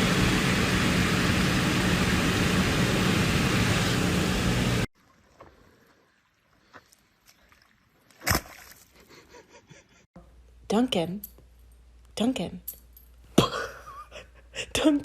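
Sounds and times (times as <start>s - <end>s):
low engine hum: 0.0s - 4.9s.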